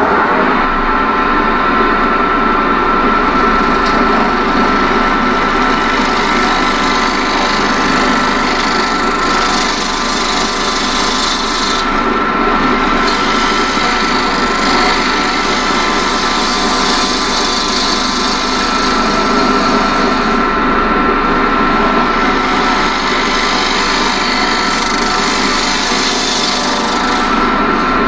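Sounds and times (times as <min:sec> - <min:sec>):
lathe motor whine: 0:00.0 - 0:28.0
turning tool scraping wood: 0:05.4 - 0:12.1, 0:12.7 - 0:20.4, 0:22.0 - 0:28.0.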